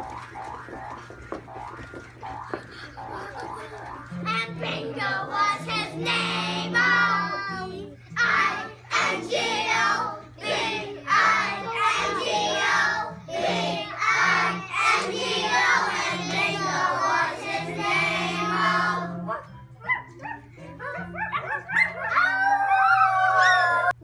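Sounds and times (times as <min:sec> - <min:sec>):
children singing together: 0:02.9 - 0:19.3.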